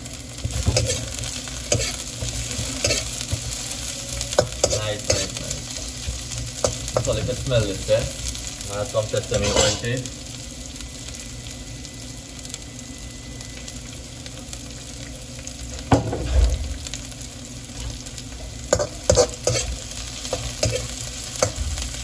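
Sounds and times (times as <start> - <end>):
vegetables sizzling in oil: 0.0 - 22.0
metal spatula scraping wok: 0.5 - 3.6, 4.3 - 5.8, 9.2 - 10.0, 18.7 - 21.6.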